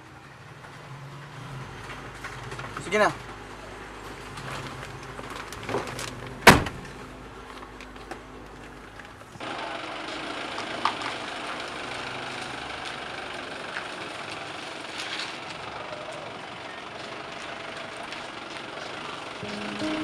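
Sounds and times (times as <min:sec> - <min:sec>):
van engine running: 0:01.6 - 0:20.0.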